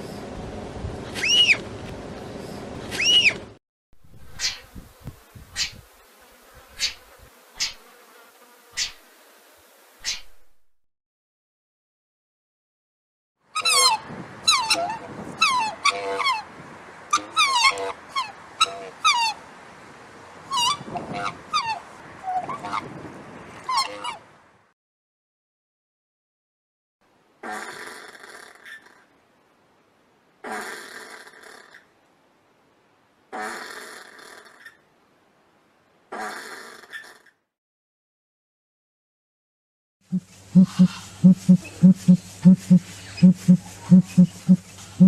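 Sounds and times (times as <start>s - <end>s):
swan honking: 13.6s - 16.5s, 17.1s - 19.4s, 23.7s - 24.2s, 40.5s - 45.0s
wallaby breathy calls: 40.6s - 44.6s.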